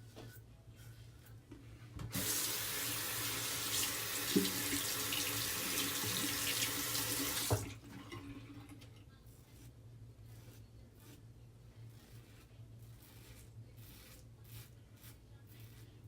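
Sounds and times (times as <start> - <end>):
tap water running into sink: 2.1 - 8.3.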